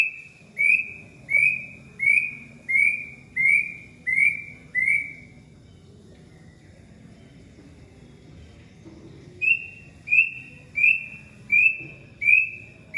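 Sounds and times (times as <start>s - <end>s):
bird whistling calls: 0.0s - 5.3s, 9.4s - 12.9s.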